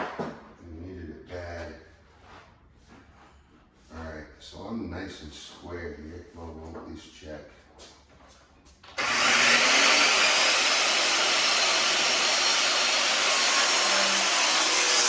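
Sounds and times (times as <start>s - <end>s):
power tool running: 9.0s - 15.0s.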